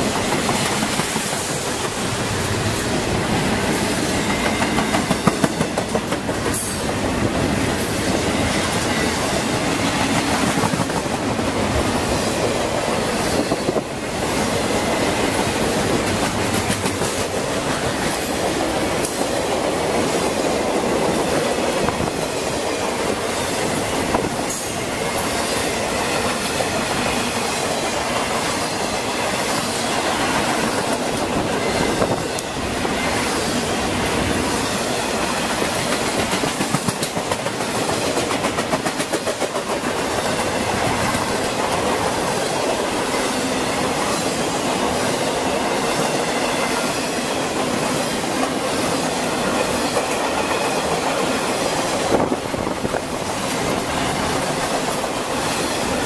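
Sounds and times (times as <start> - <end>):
train wheels rumbling on rail: 0.0 - 56.0
wheels clicking over rail joints: 15.4 - 17.8, 35.5 - 42.8.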